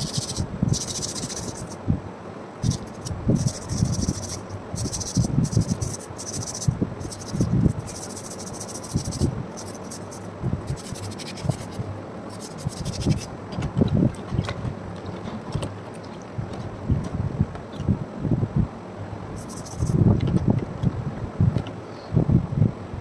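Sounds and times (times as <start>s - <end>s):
hand scraping strokes: 0.0s - 1.8s, 2.6s - 13.3s, 19.4s - 20.0s.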